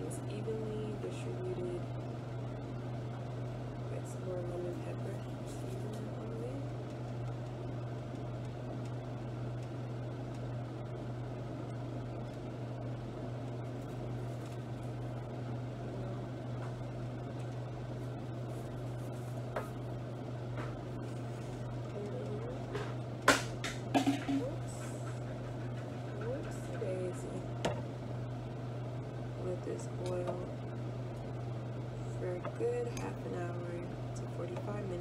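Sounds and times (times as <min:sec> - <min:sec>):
machine hum with whirring: 0:00.0 - 0:35.0.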